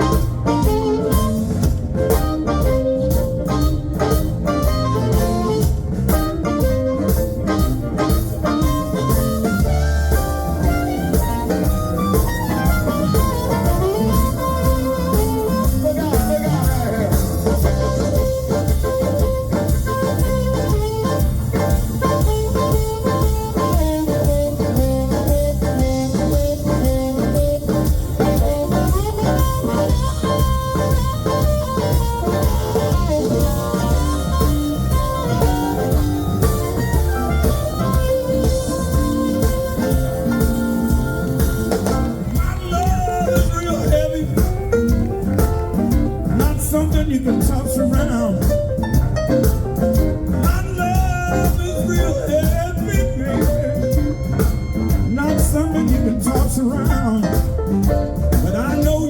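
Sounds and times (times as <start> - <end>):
electric guitar lines: 0.0 - 43.5
blues band playing: 0.0 - 59.0
drum kit beat: 0.0 - 59.0.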